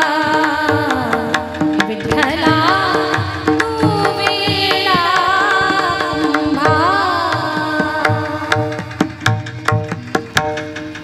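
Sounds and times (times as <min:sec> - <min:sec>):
person singing: 0:00.0 - 0:08.8.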